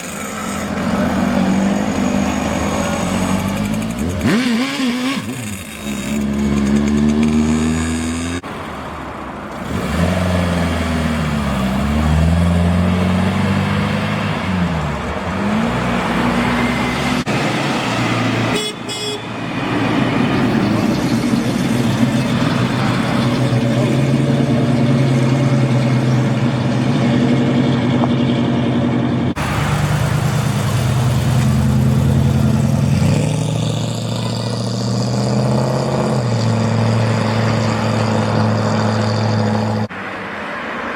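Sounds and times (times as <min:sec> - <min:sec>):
car engines revving: 0:00.0 - 0:40.8
car horn toot: 0:18.5 - 0:19.4.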